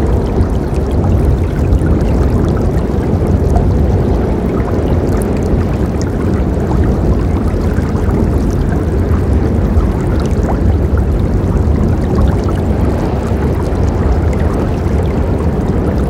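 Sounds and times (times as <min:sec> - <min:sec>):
river water rushing: 0:11.1 - 0:16.0.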